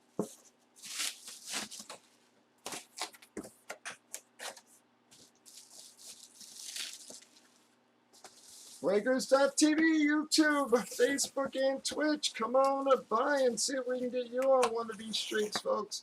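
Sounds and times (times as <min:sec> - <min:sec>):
bubble wrap crackling: 0:00.7 - 0:03.4, 0:04.4 - 0:11.5
soft rustle: 0:04.4 - 0:09.0.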